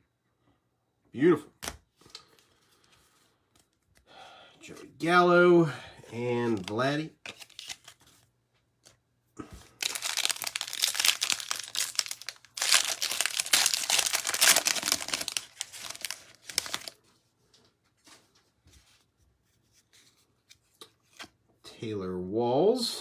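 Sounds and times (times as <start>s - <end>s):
wrapper tearing and crinkling: 6.5s - 8.0s, 9.7s - 17.0s.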